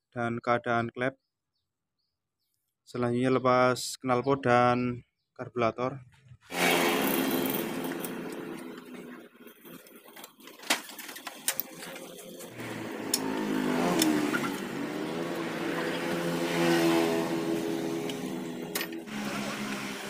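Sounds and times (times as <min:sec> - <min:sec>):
electric power tool motor: 0:06.5 - 0:09.2, 0:11.1 - 0:20.0.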